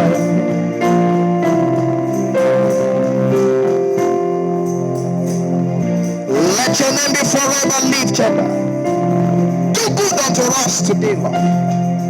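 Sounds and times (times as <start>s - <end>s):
keyboard playing sustained chords: 0.0s - 12.0s
person praying: 6.3s - 8.7s, 9.7s - 11.6s.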